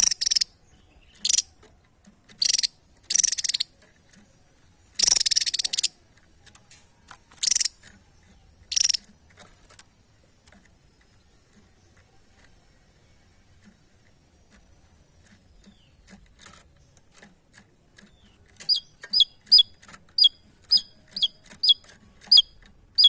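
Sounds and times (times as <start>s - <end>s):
songbird harsh trilled calls: 0.0s - 1.6s, 2.3s - 3.8s, 4.9s - 6.0s, 7.4s - 7.8s, 8.6s - 9.1s, 18.1s - 23.0s.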